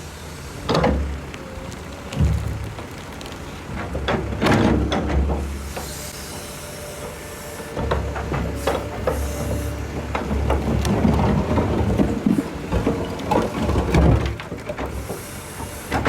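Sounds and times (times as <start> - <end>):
excavator diesel engine rumbling: 0.0 - 16.0
hiss: 5.4 - 7.8, 8.5 - 9.9, 14.9 - 16.0.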